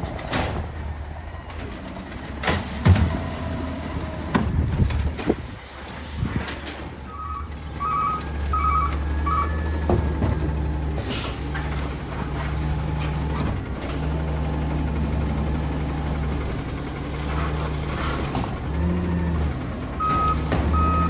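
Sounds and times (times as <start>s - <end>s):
diesel engine humming: 0.0s - 21.0s
backup alarm beeping: 7.1s - 9.8s, 18.7s - 21.0s.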